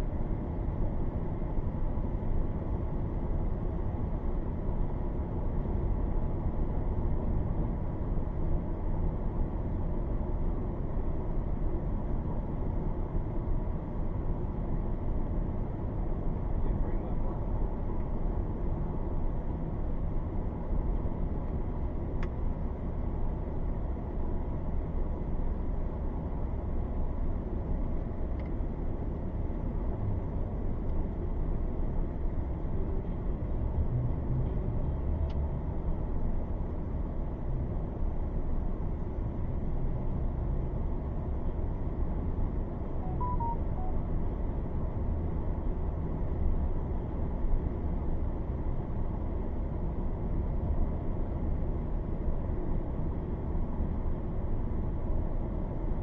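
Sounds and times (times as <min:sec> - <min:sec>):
faint short beeps: 0:43.0 - 0:44.1.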